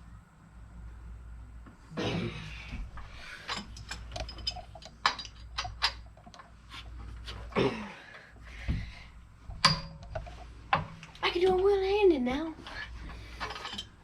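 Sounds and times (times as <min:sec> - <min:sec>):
metal clinking: 0:03.3 - 0:06.6, 0:09.5 - 0:11.6, 0:13.1 - 0:14.0.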